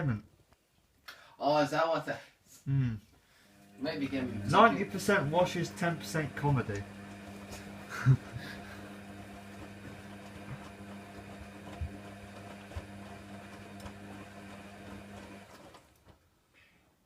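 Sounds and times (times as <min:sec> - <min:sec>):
washer drum motor hum: 0:03.5 - 0:16.2.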